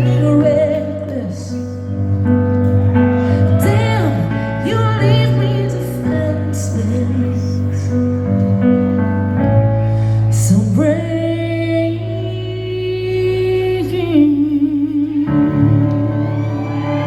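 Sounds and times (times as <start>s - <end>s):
live rock music: 0.0s - 11.6s.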